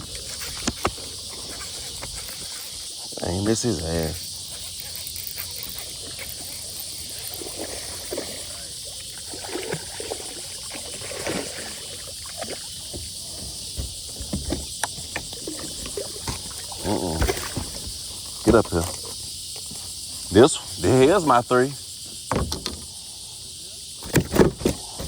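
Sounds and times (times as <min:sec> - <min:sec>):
kayak knocks and rustles: 0:00.0 - 0:02.7, 0:04.4 - 0:20.1, 0:22.0 - 0:22.9, 0:24.0 - 0:25.0
crickets chirping: 0:00.0 - 0:25.0
water splashing: 0:04.1 - 0:13.4, 0:14.8 - 0:19.2.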